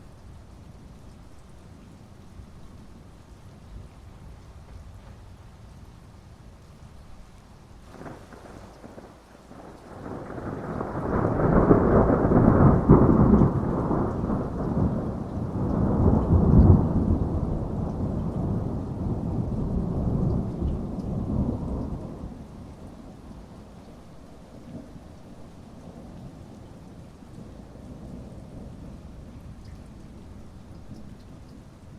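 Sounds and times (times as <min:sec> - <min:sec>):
steady rain: 0:00.0 - 0:31.9
thunder rolling: 0:07.9 - 0:22.4.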